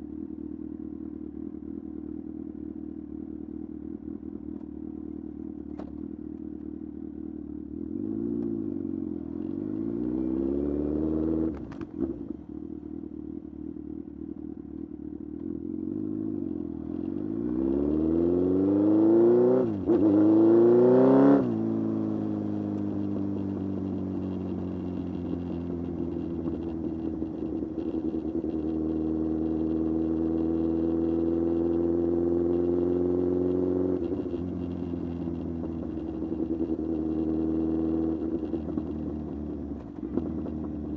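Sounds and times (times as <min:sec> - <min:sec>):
motorcycle engine revving: 0:16.3 - 0:40.9.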